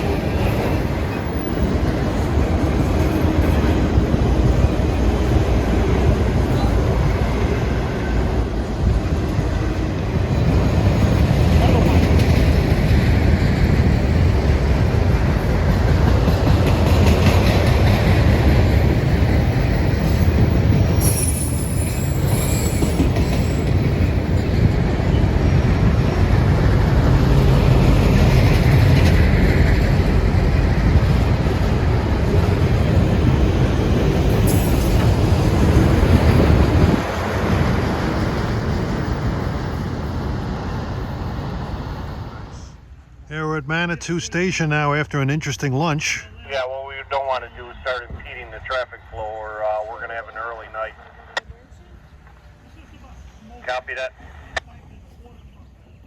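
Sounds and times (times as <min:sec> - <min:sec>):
train wheels rumbling on rail: 0:00.0 - 0:43.0
high wheel squeals: 0:19.8 - 0:24.0, 0:34.3 - 0:35.2.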